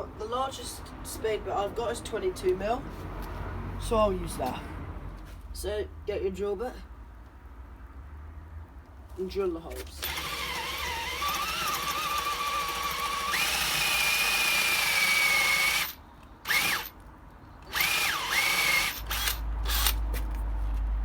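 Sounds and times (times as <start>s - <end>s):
drill motor whine: 10.0s - 16.9s, 17.7s - 20.0s
short drill trigger bursts: 10.0s - 17.0s, 17.7s - 20.0s.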